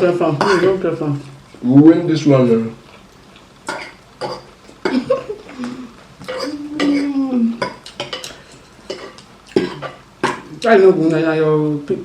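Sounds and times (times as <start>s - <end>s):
cutlery and dishes clinking: 0.4s - 0.8s, 6.2s - 10.5s.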